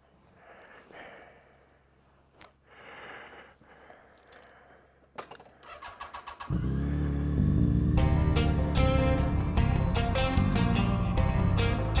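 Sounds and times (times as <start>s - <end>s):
motorcycle starter cranking: 5.6s - 6.8s
motorcycle engine idling: 5.7s - 12.0s.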